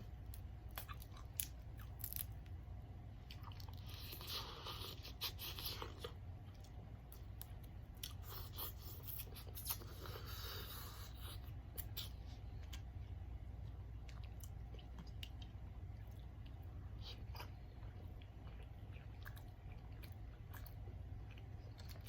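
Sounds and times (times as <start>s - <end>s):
chewing and crunching food: 0.0s - 22.0s
low steady hum: 0.0s - 22.0s.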